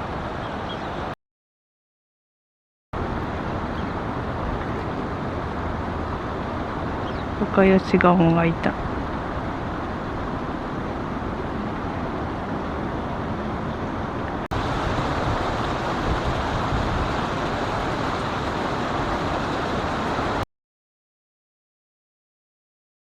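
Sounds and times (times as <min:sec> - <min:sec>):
outdoor rumble and hiss: 0:03.0 - 0:20.4.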